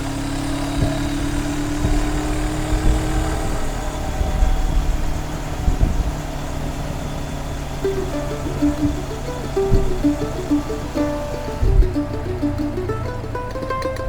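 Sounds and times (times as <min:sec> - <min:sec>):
motorcycle engine running: 0:00.0 - 0:14.0
road rumble: 0:00.0 - 0:14.0
wind rumble on microphone: 0:00.0 - 0:14.0.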